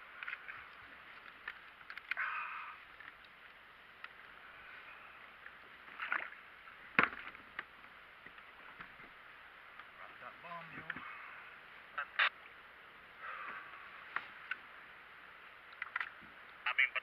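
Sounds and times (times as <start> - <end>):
water sloshing against hull: 0.0 - 10.0.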